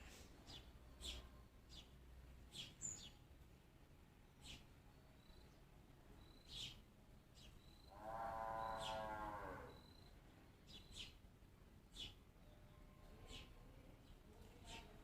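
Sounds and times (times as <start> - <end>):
long drawn-out animal call: 7.9 - 10.0.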